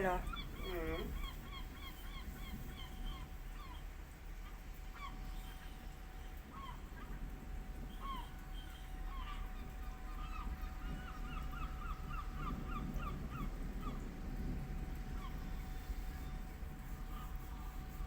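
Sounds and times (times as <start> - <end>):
birds calling: 0.0 - 3.9
faint steady hum: 0.0 - 18.0.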